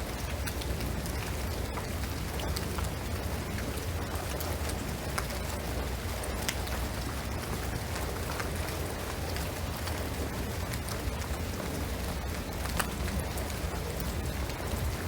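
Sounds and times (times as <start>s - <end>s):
rain hiss on roof and trees: 0.0s - 15.0s
raindrops ticking: 0.0s - 15.0s.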